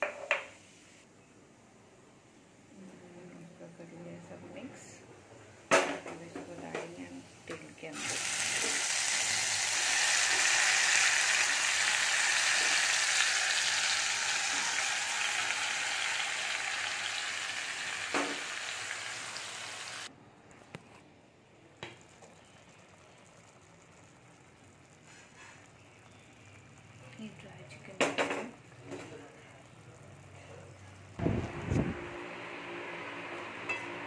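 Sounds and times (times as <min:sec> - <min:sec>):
chicken sizzling in hot oil: 0:07.9 - 0:20.1, 0:22.0 - 0:28.9.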